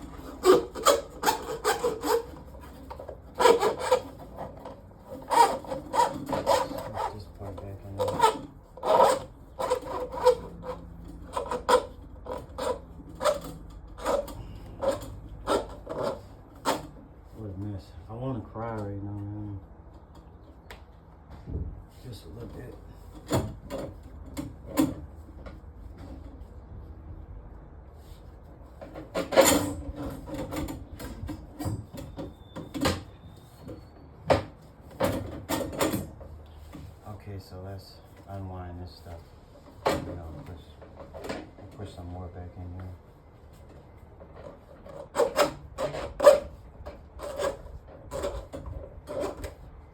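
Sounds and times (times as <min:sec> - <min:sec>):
tool scraping drain pipe: 0:00.0 - 0:17.0, 0:44.2 - 0:49.6.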